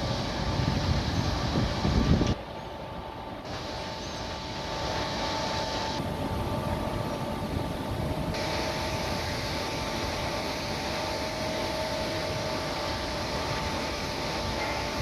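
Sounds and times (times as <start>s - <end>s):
steady engine whine: 0.0s - 15.0s.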